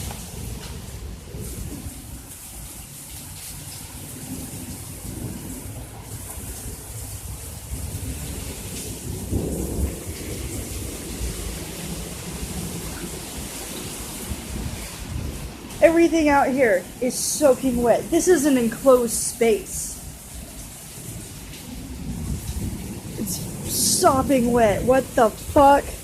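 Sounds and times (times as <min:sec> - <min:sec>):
torrential rain pouring: 0:00.0 - 0:26.0.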